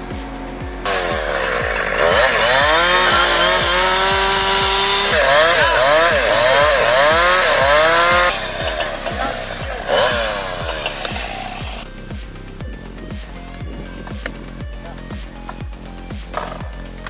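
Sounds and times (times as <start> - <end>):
background music with steady beat: 0.0 - 17.0
chainsaw engine revving: 0.2 - 11.9.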